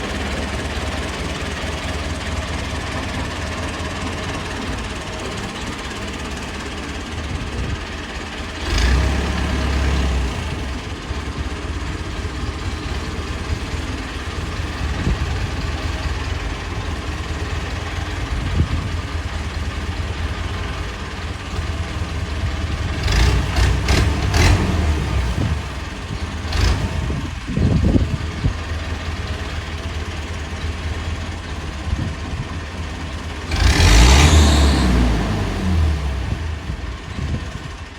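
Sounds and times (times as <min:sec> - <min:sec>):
tractor diesel engine rumbling: 0:00.0 - 0:37.9.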